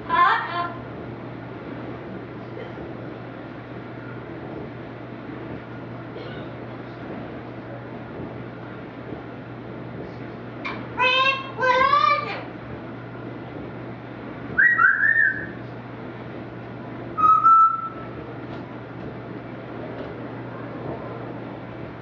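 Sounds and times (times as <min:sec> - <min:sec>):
pet bird chirruping and whistling: 0:14.6 - 0:15.6, 0:17.2 - 0:18.1.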